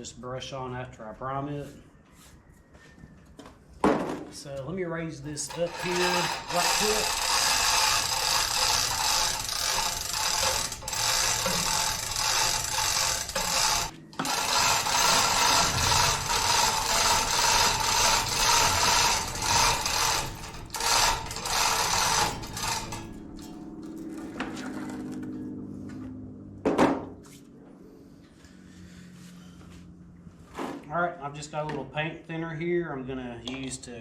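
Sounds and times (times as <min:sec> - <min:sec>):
lifting device ratcheting: 0:05.3 - 0:24.3.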